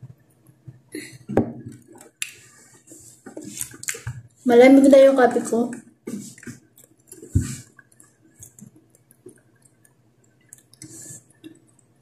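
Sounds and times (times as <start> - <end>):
chewing and swallowing: 6.3 - 12.0.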